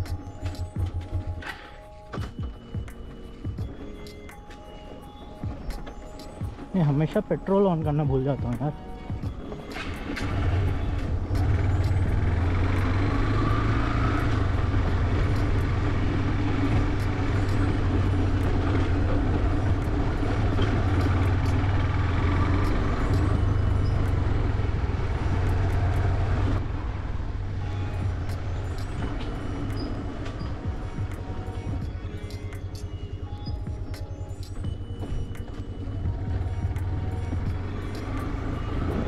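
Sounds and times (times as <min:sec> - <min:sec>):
motorcycle engine running: 0:09.2 - 0:32.0, 0:35.9 - 0:39.0.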